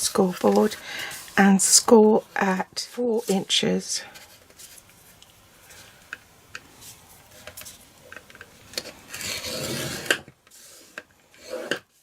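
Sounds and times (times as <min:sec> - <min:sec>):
scoring tool scraping cardstock: 0:00.0 - 0:04.9, 0:08.8 - 0:12.0.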